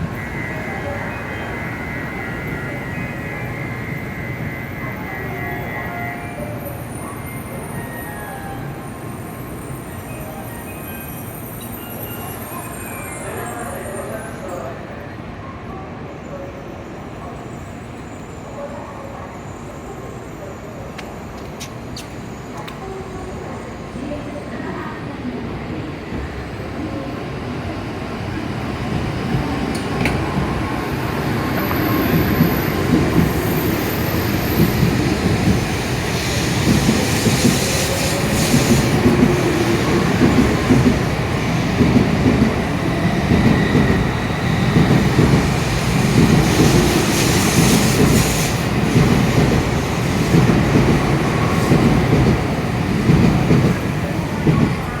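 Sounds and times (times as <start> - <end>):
train running rumble: 29.0 - 55.0.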